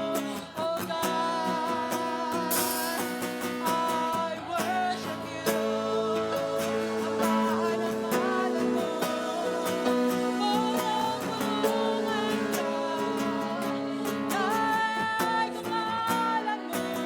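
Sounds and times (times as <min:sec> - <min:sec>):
guitar: 0:00.0 - 0:17.0
person singing melody: 0:00.0 - 0:17.0.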